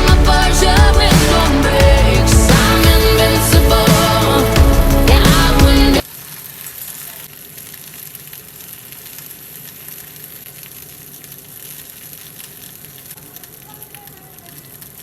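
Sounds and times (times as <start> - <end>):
peas sizzling in a pan: 6.0 - 15.0.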